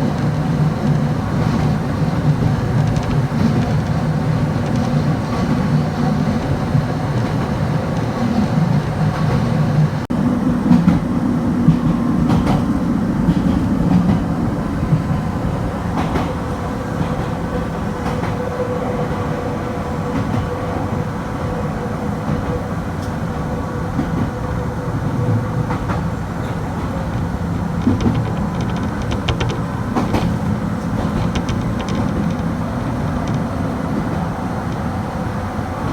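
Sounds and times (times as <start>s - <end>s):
clicks over rail joints: 0.0s - 8.4s, 26.9s - 34.9s
train wheels and motors rumbling: 0.0s - 35.9s.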